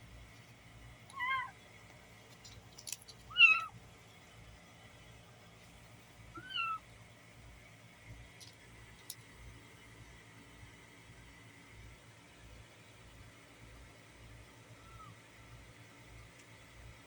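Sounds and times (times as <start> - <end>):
kittens meowing: 1.1 - 1.6, 3.3 - 3.7, 6.4 - 6.8, 14.7 - 15.2.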